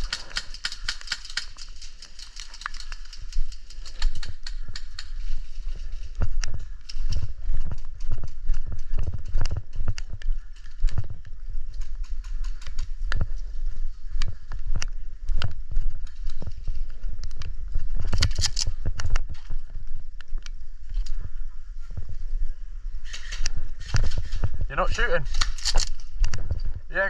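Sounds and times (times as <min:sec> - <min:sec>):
gear knocks and clicks: 0:00.0 - 0:13.4.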